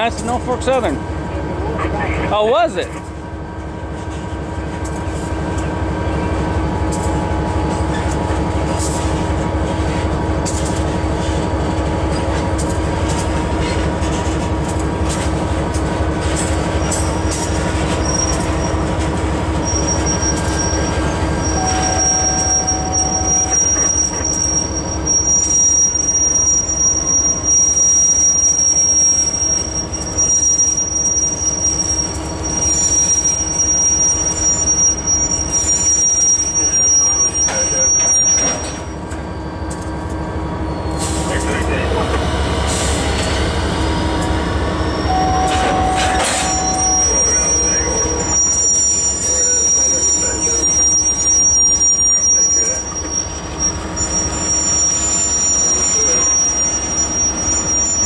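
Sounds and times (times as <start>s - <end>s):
diesel locomotive rumble: 0.0s - 58.0s
high thin wheel squeal: 16.6s - 39.7s, 40.5s - 41.4s, 42.7s - 58.0s.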